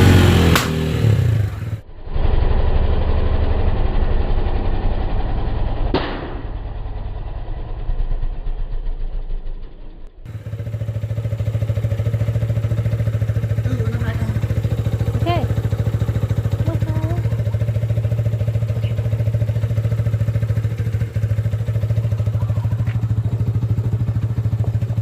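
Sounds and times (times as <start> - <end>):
motorcycle engine idling: 0.0 - 1.8, 2.7 - 25.0
sharp exhaust snaps: 0.0 - 1.8, 5.6 - 25.0.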